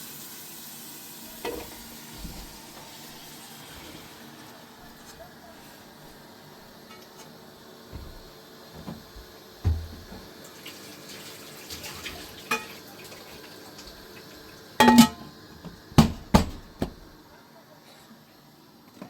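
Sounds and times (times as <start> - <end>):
water running: 0.0 - 17.2
heavy thump: 7.9 - 10.2
scattered knocks: 7.9 - 10.2.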